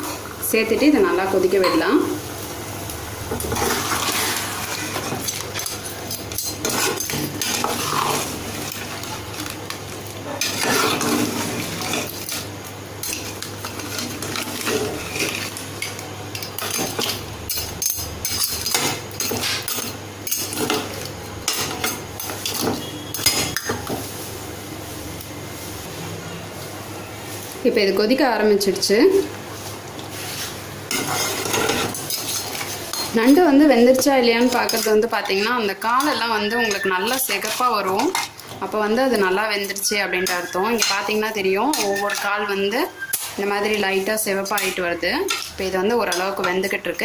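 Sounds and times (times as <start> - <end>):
faint sizzle: 0.0 - 47.0
spoon clinking and scraping pan: 3.4 - 8.9, 10.4 - 23.9, 30.9 - 33.4, 34.3 - 38.5, 39.2 - 43.8.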